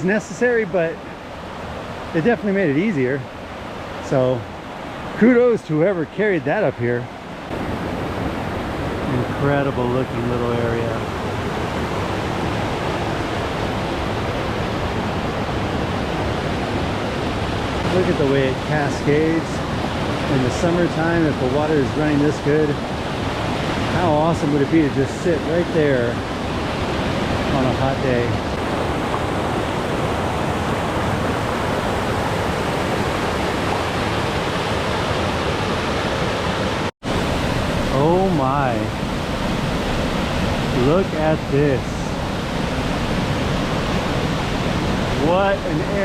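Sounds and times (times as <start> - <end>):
waterfall rushing: 7.5 - 46.0.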